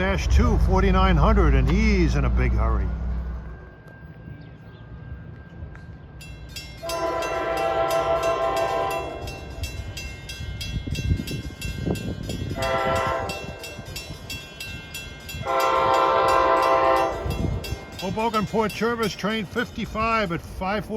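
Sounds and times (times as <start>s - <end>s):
engine and wheel rumble: 0.0s - 7.9s
locomotive air horn blasts: 6.8s - 9.6s, 12.5s - 13.7s, 15.4s - 17.7s.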